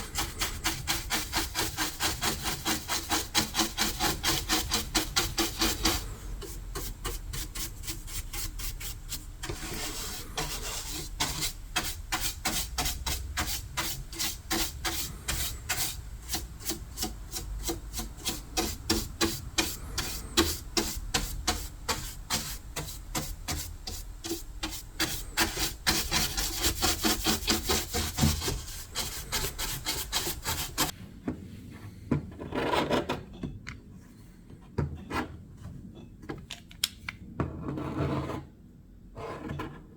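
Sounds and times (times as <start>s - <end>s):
tool rubbing paint off wood: 0.0s - 30.9s.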